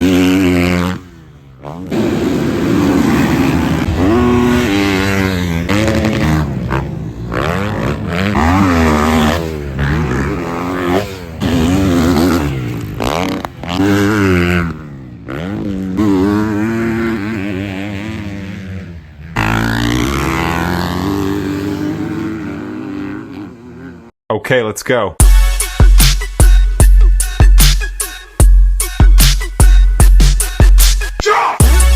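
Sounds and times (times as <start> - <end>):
motocross engines revving: 0.0 - 24.1.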